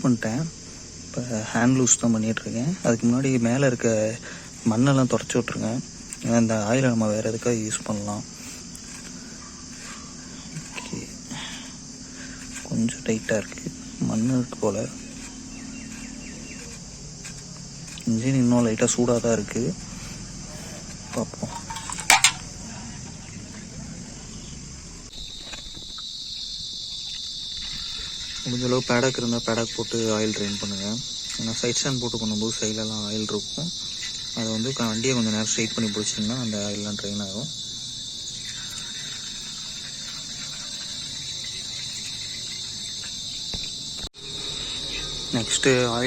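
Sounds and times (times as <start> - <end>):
crickets trilling: 0.0 - 46.0.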